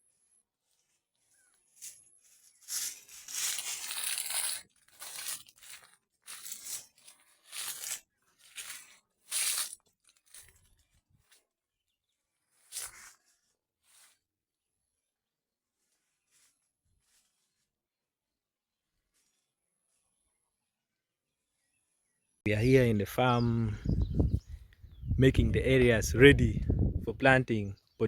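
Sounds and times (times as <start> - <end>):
dry soil crunching and tearing: 2.6 - 10.9.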